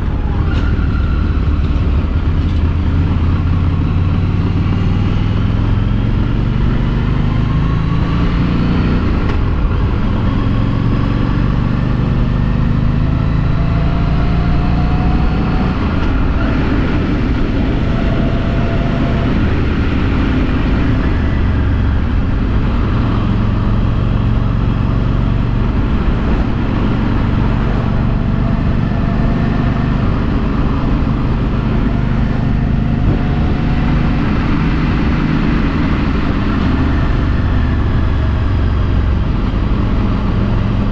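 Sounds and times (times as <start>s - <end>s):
wind and road noise: 0.0s - 40.9s
motorcycle engine running: 15.8s - 40.9s.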